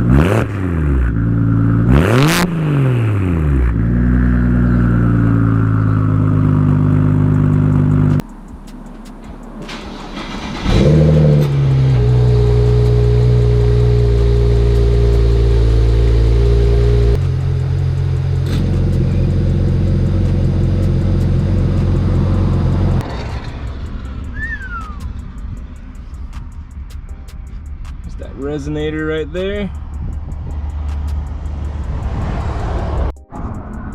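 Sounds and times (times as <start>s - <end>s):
loud car engine revving: 0.0s - 25.6s, 29.8s - 33.1s
short falling whistle: 24.3s - 25.2s.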